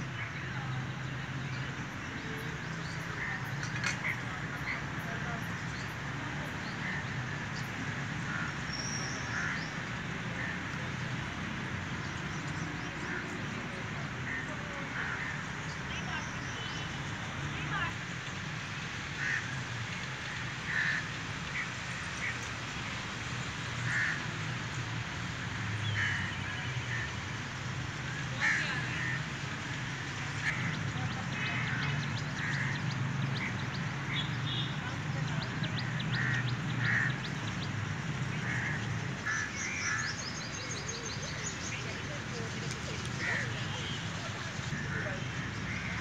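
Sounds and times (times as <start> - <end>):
bird calls: 30.4 - 46.0.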